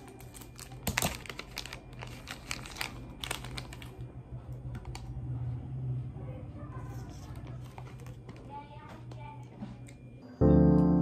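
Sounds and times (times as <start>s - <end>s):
plastic wrapper crinkling: 0.0s - 4.1s.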